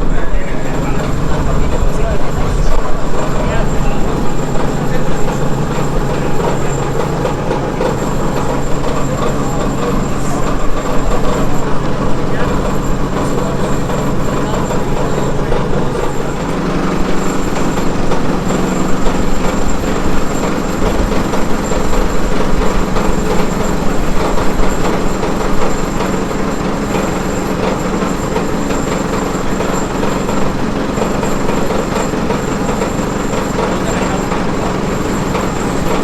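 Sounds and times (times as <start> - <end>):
engine running steadily: 0.0 - 36.0
thin high whine: 0.0 - 36.0.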